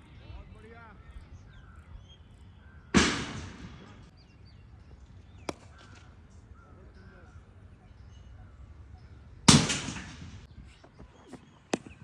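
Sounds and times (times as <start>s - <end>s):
cricket bat striking ball: 5.4s - 6.0s, 11.7s - 12.0s.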